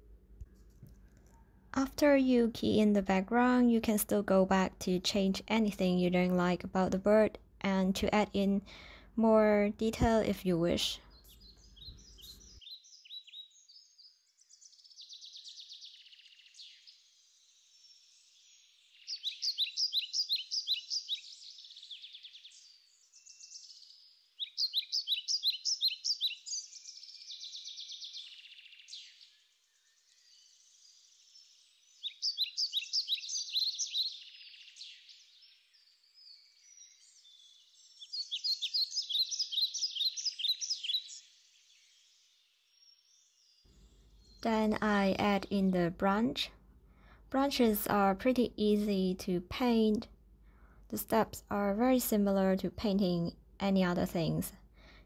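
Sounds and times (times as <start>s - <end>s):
faint bird chirping and warbling: 9.8s - 46.5s
songbird trilling: 11.0s - 17.0s, 17.8s - 29.4s, 31.3s - 41.3s.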